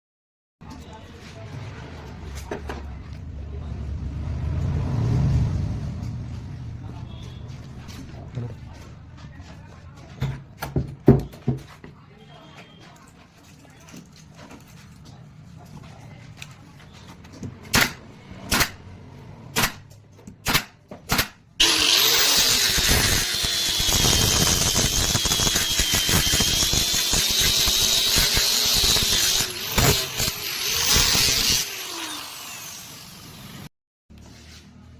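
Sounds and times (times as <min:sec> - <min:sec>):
power tool whining: 0:21.6 - 0:33.7.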